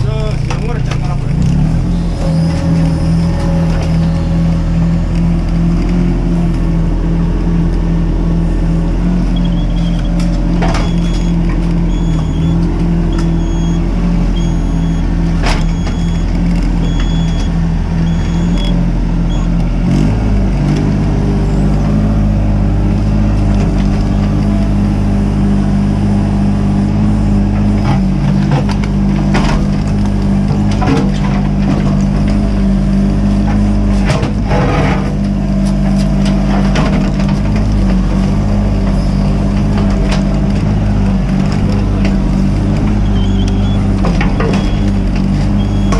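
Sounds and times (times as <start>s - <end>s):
excavator diesel engine: 0.0s - 45.9s
knocks and scrapes: 33.4s - 45.9s.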